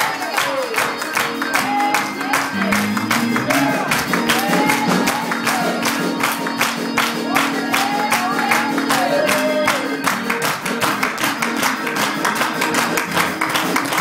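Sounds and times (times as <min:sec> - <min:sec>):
church organ chords: 0:01.1 - 0:10.8.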